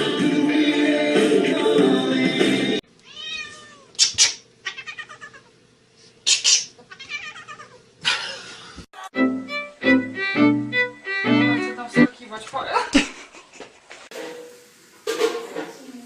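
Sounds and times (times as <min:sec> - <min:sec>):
background music: 0:00.0 - 0:02.8, 0:09.0 - 0:12.1
cat meowing and yowling: 0:03.1 - 0:03.9, 0:04.7 - 0:05.5, 0:06.9 - 0:07.8.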